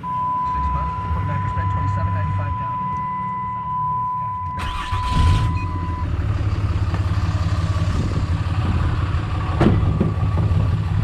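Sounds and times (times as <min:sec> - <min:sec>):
diesel engine running: 0:04.5 - 0:11.0.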